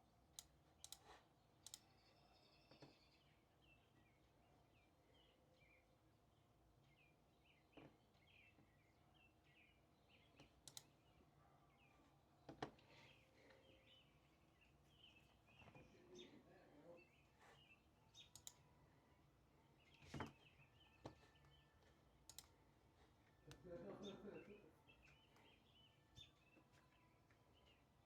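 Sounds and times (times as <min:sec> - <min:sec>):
small birds chirping: 0:00.3 - 0:28.0
sharp clicks: 0:00.4 - 0:01.0, 0:01.6 - 0:01.9, 0:10.6 - 0:10.9, 0:18.3 - 0:18.6, 0:22.3 - 0:22.5.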